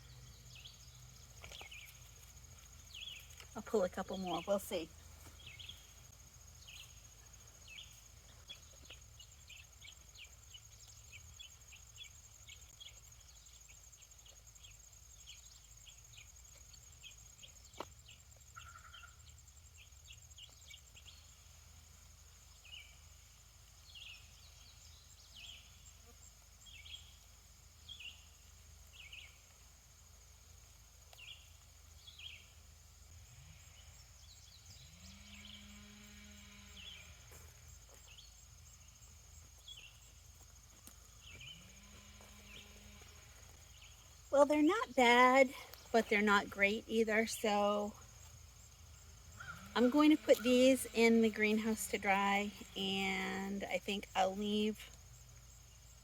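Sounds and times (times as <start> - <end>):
birds chirping: 0.0 - 21.3, 37.9 - 54.8.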